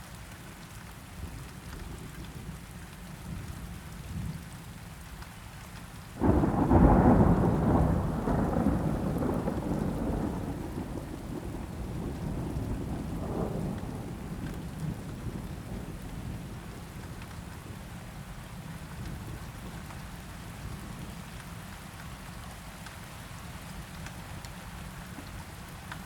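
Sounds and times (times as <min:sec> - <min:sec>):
steady rain: 0:00.0 - 0:26.0
thunder rumbling: 0:06.2 - 0:17.1.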